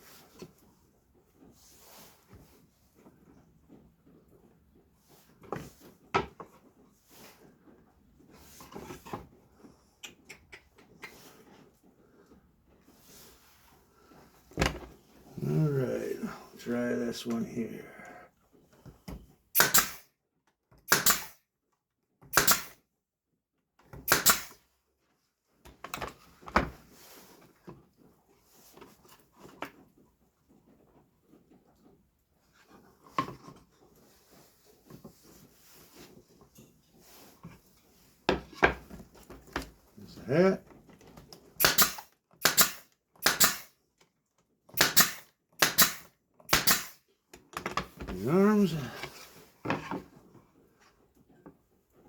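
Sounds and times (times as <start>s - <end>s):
nail gun hissing shots: 19.6s - 20.1s, 20.9s - 21.4s, 22.3s - 22.8s, 24.0s - 24.6s, 41.6s - 43.7s, 44.8s - 47.0s.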